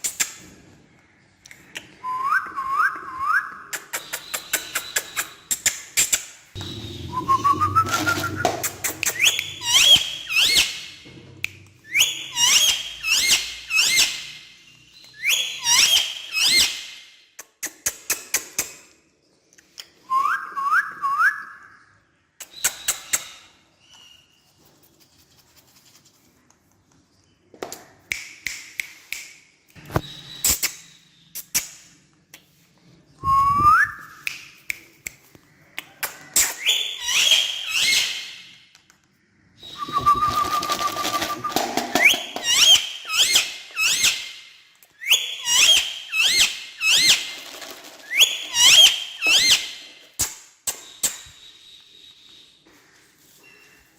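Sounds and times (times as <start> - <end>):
parrot chirps and squawks: 6.6 - 10.9, 42.4 - 44.5, 45.2 - 47.4.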